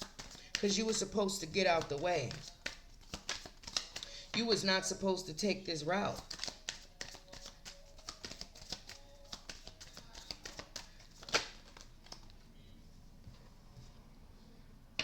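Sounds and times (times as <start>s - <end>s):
cards clicking and tapping: 0.0s - 4.6s, 6.1s - 12.4s.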